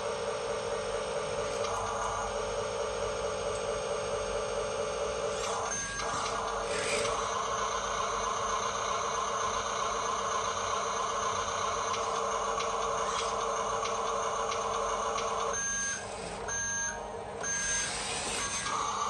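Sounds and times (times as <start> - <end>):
toy truck electric motor whirring: 5.3 - 16.5, 17.4 - 19.0.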